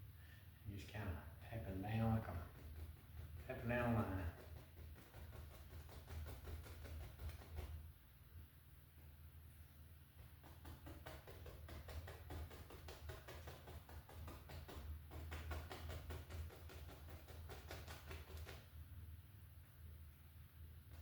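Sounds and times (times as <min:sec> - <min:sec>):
brush tapping on canvas: 0:01.9 - 0:07.9, 0:10.2 - 0:18.7.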